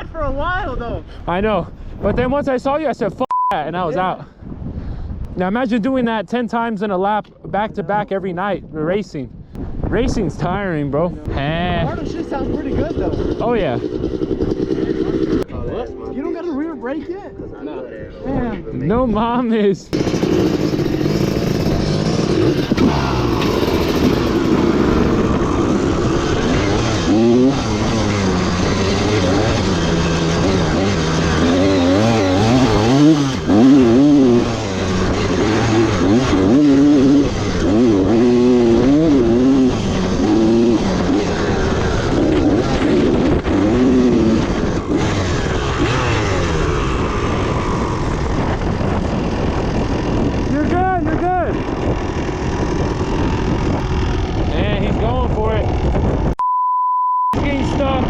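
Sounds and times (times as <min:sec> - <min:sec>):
low wind noise rumble: 0:00.0 - 0:56.4, 0:57.4 - 0:58.0
dirt bike engine running: 0:11.4 - 0:15.5, 0:20.0 - 0:56.4.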